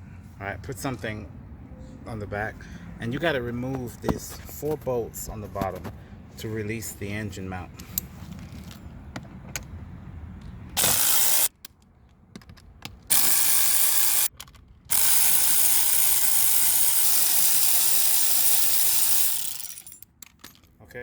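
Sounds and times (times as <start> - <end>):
power tool running: 10.8 - 11.5, 13.1 - 14.3, 14.9 - 20.0.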